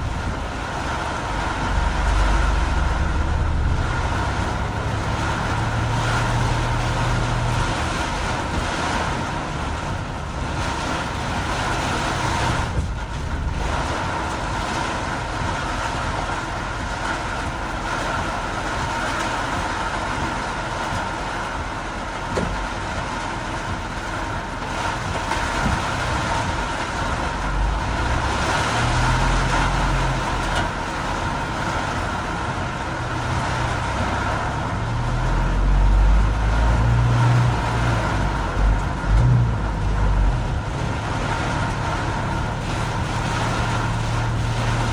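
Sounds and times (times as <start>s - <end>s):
heavy rain: 0.0s - 44.9s
low engine rumble: 0.0s - 44.9s
tyre noise on wet road: 0.0s - 44.9s.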